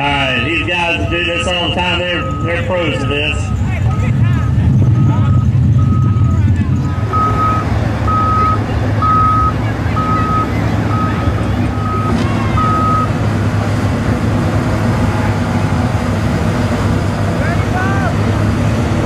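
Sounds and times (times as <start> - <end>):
vehicle backup alarm beeping: 0.0 - 13.2
low engine rumble: 0.0 - 19.0.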